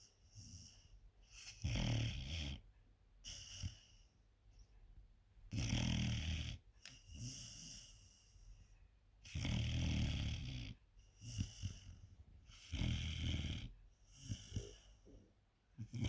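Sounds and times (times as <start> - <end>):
puppy breathing softly: 0.0 - 1.7, 6.8 - 9.0, 10.8 - 16.0
puppy snoring: 0.4 - 4.1, 5.5 - 8.1, 9.2 - 16.0.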